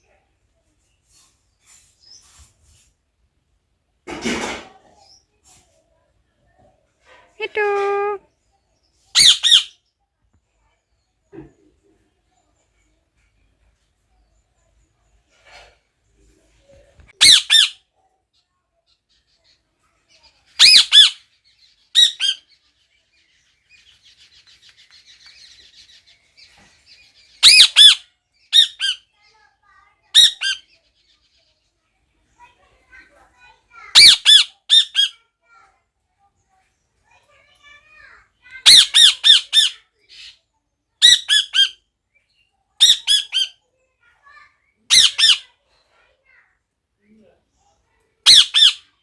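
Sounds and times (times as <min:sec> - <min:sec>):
parrot chattering: 0:07.4 - 0:08.2, 0:09.2 - 0:09.7, 0:17.2 - 0:17.8, 0:20.6 - 0:21.2, 0:27.4 - 0:28.0, 0:30.2 - 0:30.6, 0:33.9 - 0:35.1, 0:38.6 - 0:40.3, 0:41.0 - 0:41.8, 0:42.8 - 0:43.6, 0:44.9 - 0:45.5, 0:48.2 - 0:48.9
parrot squawking: 0:07.4 - 0:08.2, 0:09.2 - 0:09.7, 0:17.2 - 0:17.8, 0:20.6 - 0:21.2, 0:27.4 - 0:28.0, 0:30.2 - 0:30.6, 0:33.9 - 0:35.1, 0:38.6 - 0:40.4, 0:41.0 - 0:41.8, 0:42.8 - 0:43.6, 0:44.9 - 0:45.5, 0:48.2 - 0:48.9.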